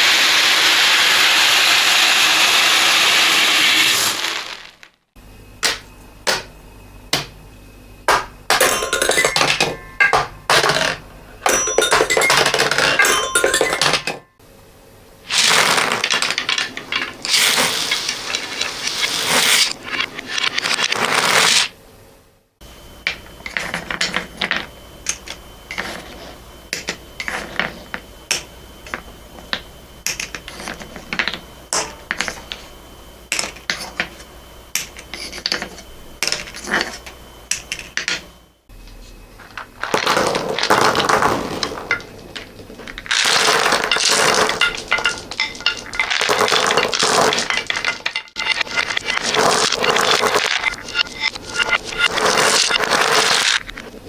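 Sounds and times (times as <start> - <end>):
beads and balls clattering: 8.1 - 14.3, 15.3 - 21.7, 39.4 - 53.9.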